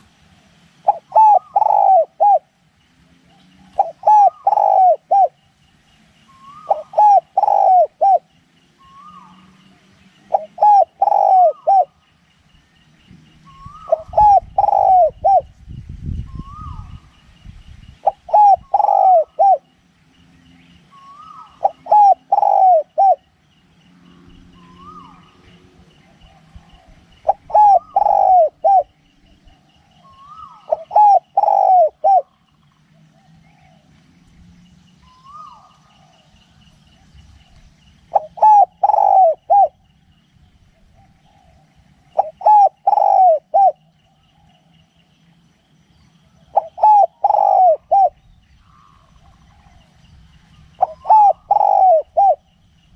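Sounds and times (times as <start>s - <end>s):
dove cooing: 0.8s - 5.6s, 6.3s - 12.0s, 13.4s - 15.6s, 16.3s - 17.1s, 18.0s - 19.7s, 20.9s - 23.4s, 24.3s - 33.9s, 35.0s - 37.4s, 38.0s - 40.0s, 40.8s - 44.6s, 46.2s - 50.0s, 50.6s - 52.6s
faint rapid ticking bird call: 0.8s - 15.4s, 16.7s - 52.9s.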